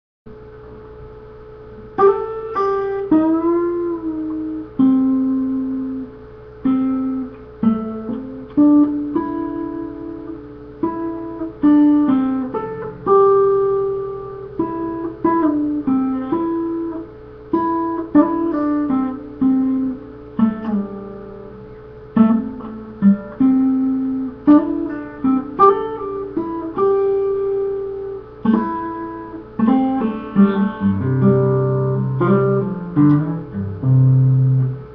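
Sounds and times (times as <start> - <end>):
faint steady hum: 0.3 - 34.9
solo guitar playing slow tune: 0.3 - 34.9.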